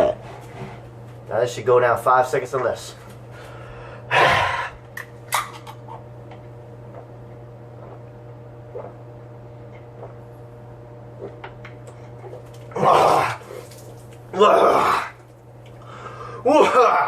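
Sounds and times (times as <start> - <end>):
person gulping: 0.0 - 0.3, 6.8 - 10.5, 11.1 - 15.3
steady low hum: 0.0 - 17.0.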